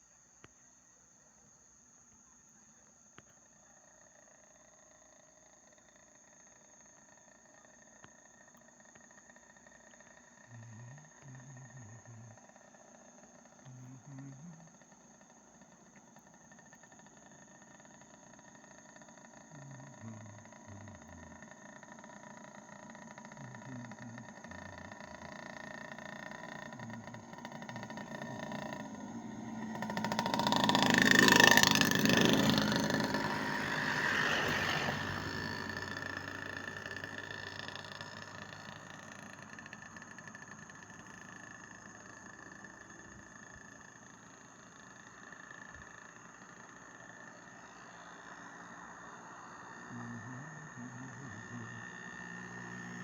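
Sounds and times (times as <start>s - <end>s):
motor vehicle passing by: 4.4s - 53.0s.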